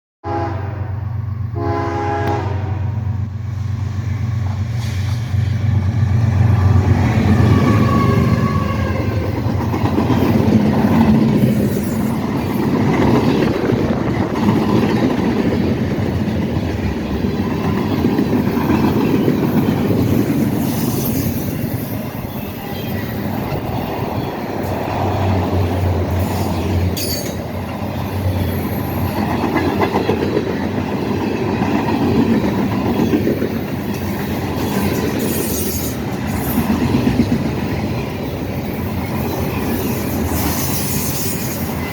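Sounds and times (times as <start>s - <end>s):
train horn blasts: 0.2s - 3.3s, 7.5s - 9.3s.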